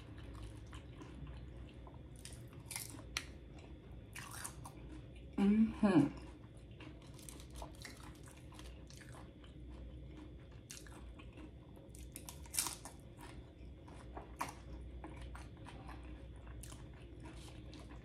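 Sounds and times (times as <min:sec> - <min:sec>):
tortilla chips crunching: 0:00.0 - 0:05.3, 0:06.3 - 0:18.0.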